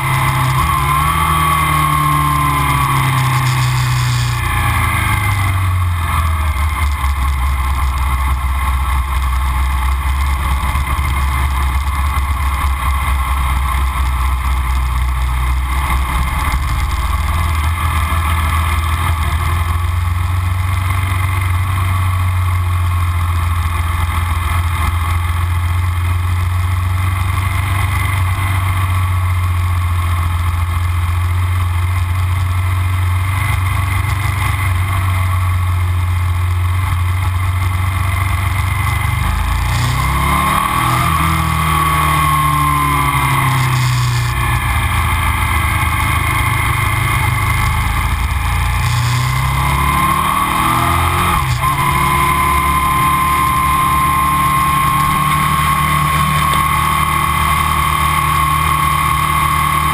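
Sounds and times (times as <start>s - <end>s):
motorcycle engine running: 0.0s - 59.9s
whine rising and falling: 47.8s - 58.8s.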